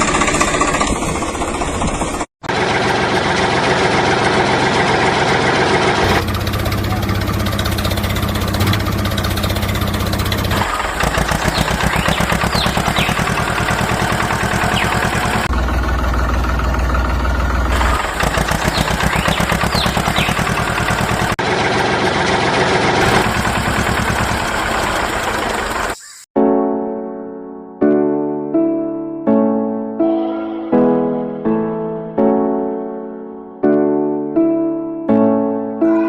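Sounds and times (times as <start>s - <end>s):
engine throbbing: 0.0s - 26.0s
piano music: 26.4s - 36.0s.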